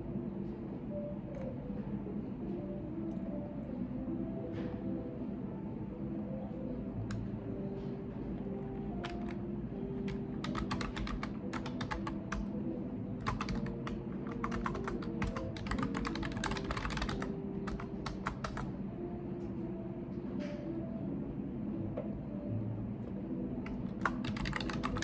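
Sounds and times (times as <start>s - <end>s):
low background hum: 0.0s - 25.0s
typing on computer keyboard: 9.0s - 9.4s, 10.0s - 12.5s, 13.2s - 18.7s, 23.6s - 25.0s.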